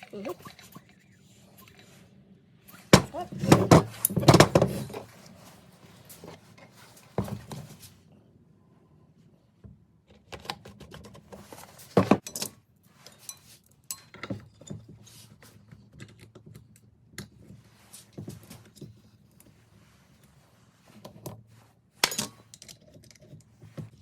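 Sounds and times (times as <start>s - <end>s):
metal parts clicking and clinking: 12.1s - 14.7s, 22.0s - 23.3s.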